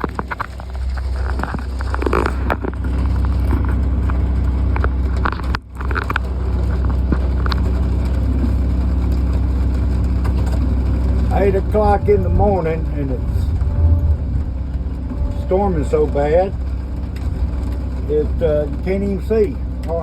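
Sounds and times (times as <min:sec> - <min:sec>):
sharp taps and crackles: 0:00.0 - 0:11.9
engine droning: 0:00.0 - 0:20.0.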